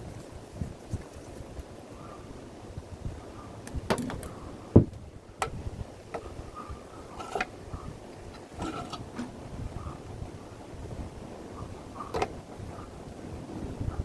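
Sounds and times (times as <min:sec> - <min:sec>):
clicks and knocks of handling: 0:12.0 - 0:12.4.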